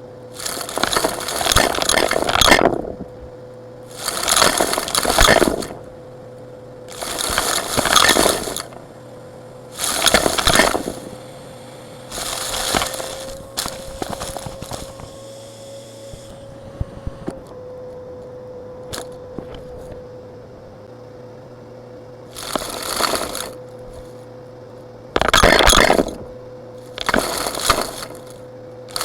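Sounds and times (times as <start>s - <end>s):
gravel rattling in vacuum: 0.0s - 29.0s
vacuum cleaner hum: 0.0s - 29.0s
stones clicking: 0.4s - 3.0s, 3.9s - 5.9s, 6.9s - 8.8s, 9.8s - 11.3s, 12.1s - 15.2s, 22.4s - 24.1s, 25.2s - 26.3s, 26.9s - 29.0s.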